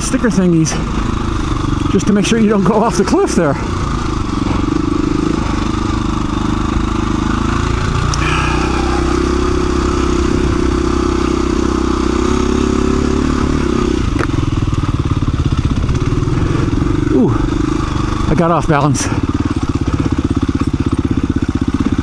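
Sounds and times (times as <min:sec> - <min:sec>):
dirt bike engine running: 0:00.0 - 0:22.0.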